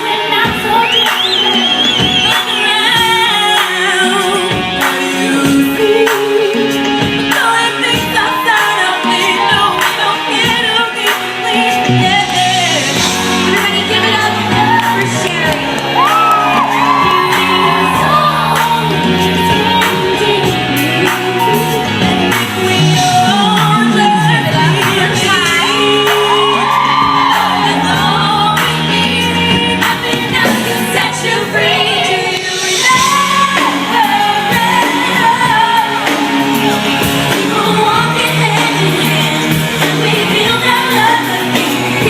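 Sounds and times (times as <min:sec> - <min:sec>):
crowd shouts and whoops: 0:00.0 - 0:03.6, 0:07.9 - 0:20.5, 0:23.0 - 0:31.2
live pop band playing: 0:00.0 - 0:42.0
person singing: 0:00.0 - 0:42.0.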